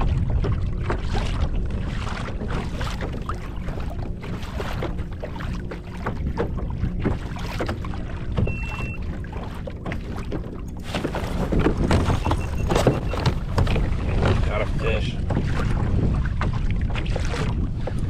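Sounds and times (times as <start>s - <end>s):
water splashing against kayak hull: 0.0s - 18.0s
wind buffeting microphone: 0.0s - 18.0s
short high beep: 8.5s - 9.0s, 12.3s - 13.2s.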